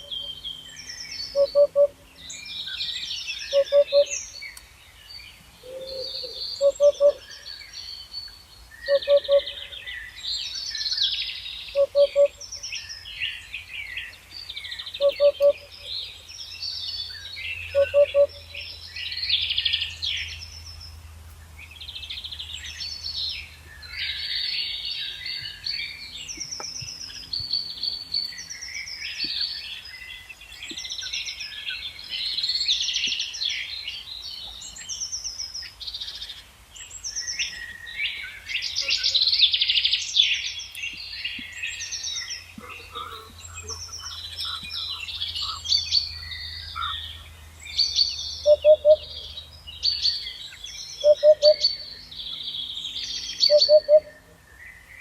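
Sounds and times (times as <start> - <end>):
lower louder bird call: 0.0 - 4.6, 5.6 - 8.0, 8.7 - 16.2, 17.0 - 20.4, 41.2 - 55.0
birds singing and chirping: 0.0 - 55.0.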